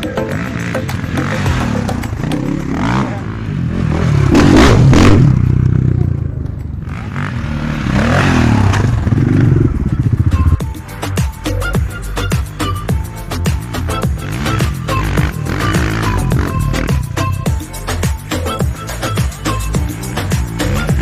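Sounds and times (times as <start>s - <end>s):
motorcycle engine revving: 0.0s - 10.8s, 13.8s - 17.6s.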